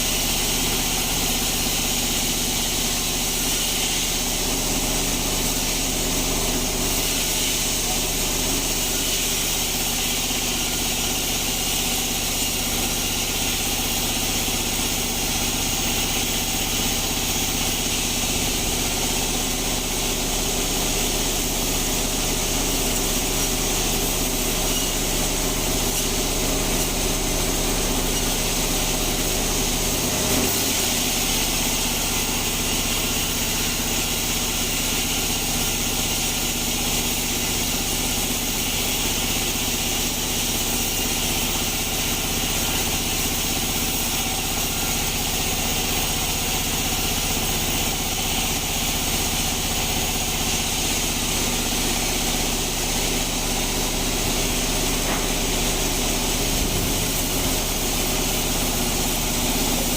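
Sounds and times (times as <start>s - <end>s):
band sawmill hum and hiss: 0.0s - 59.9s.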